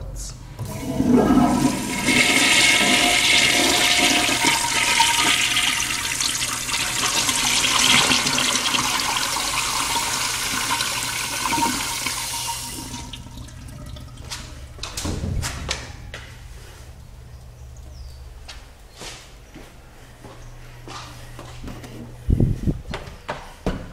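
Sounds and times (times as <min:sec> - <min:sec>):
toilet flushing water rush: 0:00.6 - 0:14.8.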